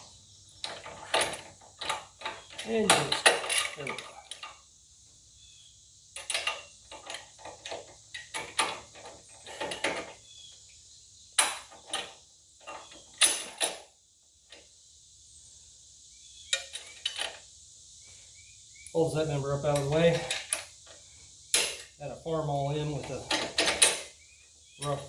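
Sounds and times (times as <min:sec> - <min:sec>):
metal hitch parts clanking: 0:00.6 - 0:04.6, 0:19.0 - 0:20.7, 0:21.5 - 0:24.2, 0:24.8 - 0:25.0.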